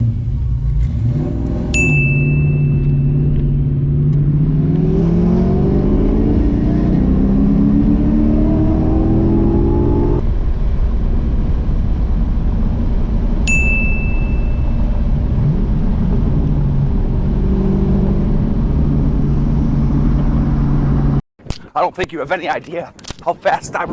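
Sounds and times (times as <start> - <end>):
car engine accelerating hard: 0.0 - 1.8, 2.7 - 13.4
short high dings: 1.8 - 3.6, 13.5 - 15.0.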